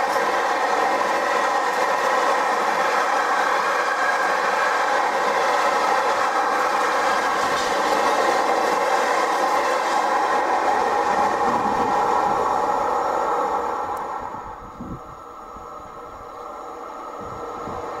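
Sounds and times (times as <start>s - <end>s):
freight wagons rolling on rails: 0.0s - 12.4s.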